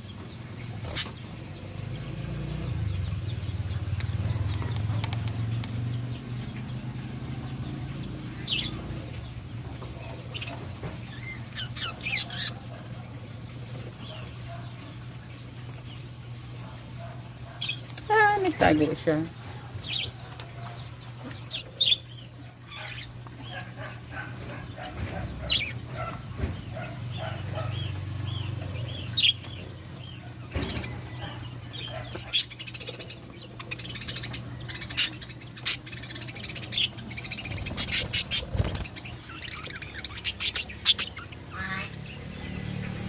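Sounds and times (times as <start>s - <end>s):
budgerigars chirping and chattering: 0.0s - 43.0s.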